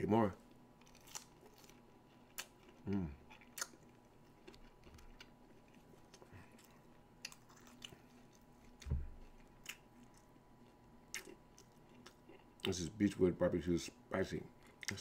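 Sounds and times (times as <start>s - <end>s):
quiet chewing: 0.8s - 12.8s
low thump: 8.8s - 9.2s.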